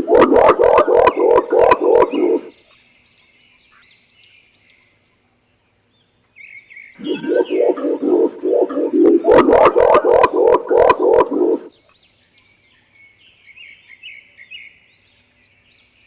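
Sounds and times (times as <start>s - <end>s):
pigeon deep rapid call: 7.0s - 11.7s.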